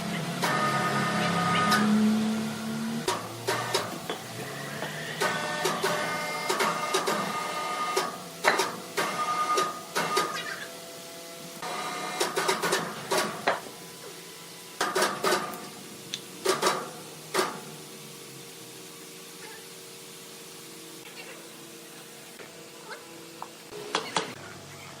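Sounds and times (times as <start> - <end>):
sawmill machinery whine: 0.0 - 16.1
sharp knocks and clattering: 8.4 - 9.1, 12.2 - 13.8, 14.8 - 15.6, 16.4 - 17.6.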